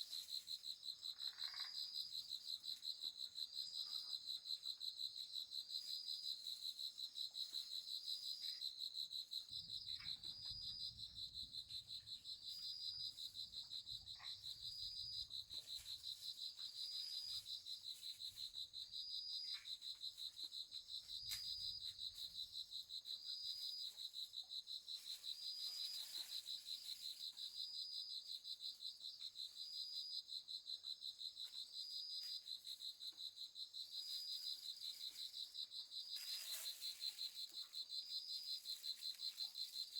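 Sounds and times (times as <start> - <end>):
crickets trilling: 0.1 - 2.8, 7.5 - 39.9
higher insect call: 0.9 - 2.2, 33.4 - 39.9.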